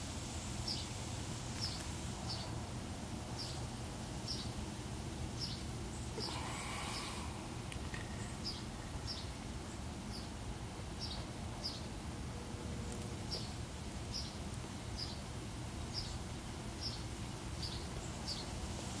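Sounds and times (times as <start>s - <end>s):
low background rumble: 0.0s - 16.6s
small bird chirping: 1.6s - 2.6s, 5.4s - 10.4s, 13.3s - 15.2s, 15.9s - 16.2s, 16.8s - 18.6s.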